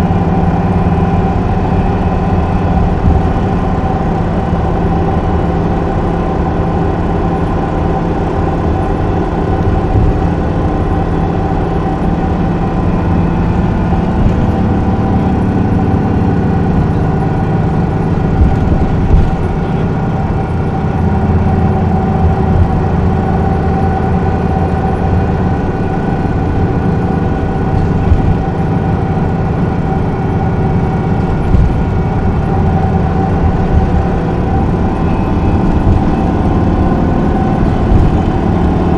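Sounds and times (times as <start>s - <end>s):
bus diesel engine droning: 0.0s - 38.9s.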